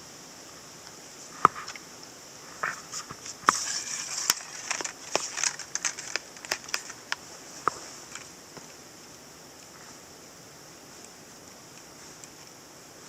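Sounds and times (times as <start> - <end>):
high-pitched hiss: 0.0 - 13.0
twigs snapping and crackling: 3.0 - 9.7.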